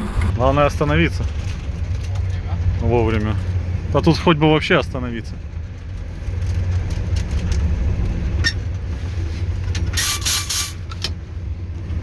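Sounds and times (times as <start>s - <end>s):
diesel locomotive engine running: 0.0s - 12.0s
compressed-air brake hiss: 9.3s - 11.0s.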